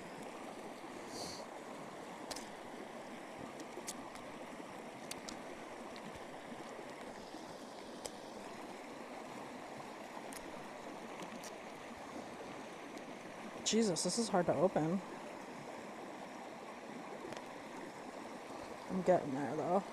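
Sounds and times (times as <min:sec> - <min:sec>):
running water rushing: 0:00.0 - 0:19.9
faint scattered clicks: 0:05.0 - 0:08.2.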